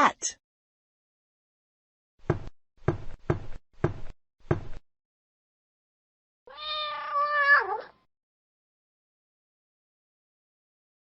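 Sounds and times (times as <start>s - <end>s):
quick knocks: 2.2s - 4.8s
cat meow: 6.5s - 8.1s.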